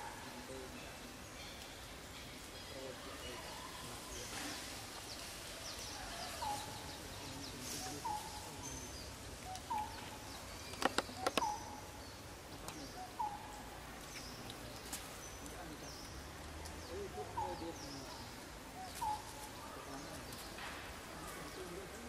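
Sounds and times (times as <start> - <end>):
sharp clicks: 10.7 - 11.5.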